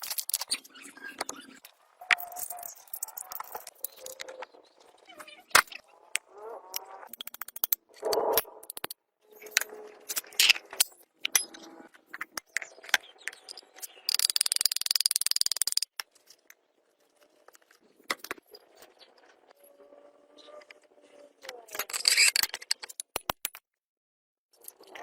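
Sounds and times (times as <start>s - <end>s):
metal parts clinking: 0.0s - 0.7s, 7.1s - 16.4s, 21.7s - 23.2s
sharp clicks: 5.5s - 16.0s.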